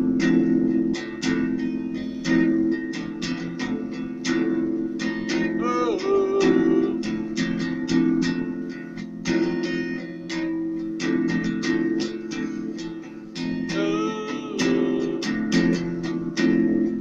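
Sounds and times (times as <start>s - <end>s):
acoustic guitar strumming: 0.0s - 17.0s
person singing wordless note: 13.7s - 15.4s.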